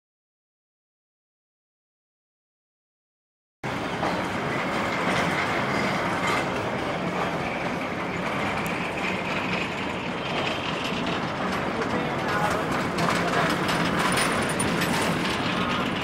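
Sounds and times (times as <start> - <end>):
train wheels rolling on rails: 3.7 - 16.0.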